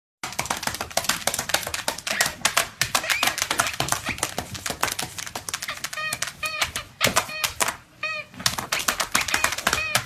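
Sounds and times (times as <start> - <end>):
puppy claws clicking on floor: 0.2 - 7.8, 8.4 - 10.0
puppy whining: 3.0 - 4.3, 5.6 - 10.0.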